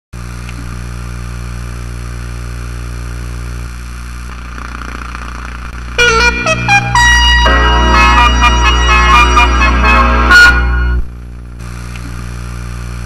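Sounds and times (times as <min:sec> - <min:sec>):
steady low hum: 0:00.2 - 0:13.0
organ-like keyboard music: 0:05.8 - 0:11.1.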